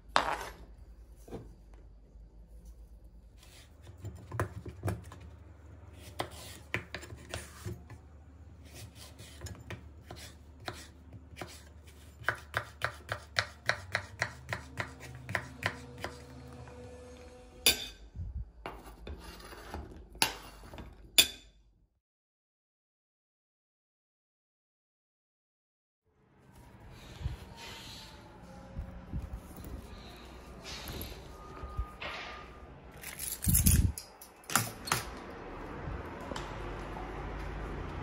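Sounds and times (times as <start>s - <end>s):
knife scraping board: 0.2s - 0.6s, 6.0s - 7.9s, 8.6s - 16.3s, 18.7s - 20.9s
knife chopping on cutting board: 8.7s - 16.3s.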